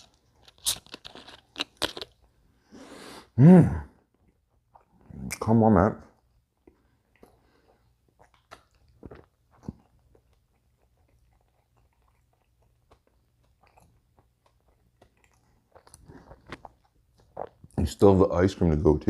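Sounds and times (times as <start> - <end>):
person chewing food: 0.0 - 2.5, 4.1 - 5.1, 6.2 - 17.8.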